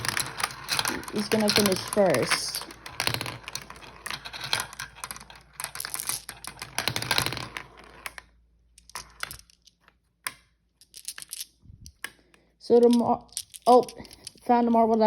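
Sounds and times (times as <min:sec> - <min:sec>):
marbles clattering along track: 0:00.0 - 0:09.9, 0:10.8 - 0:12.1, 0:12.7 - 0:15.0.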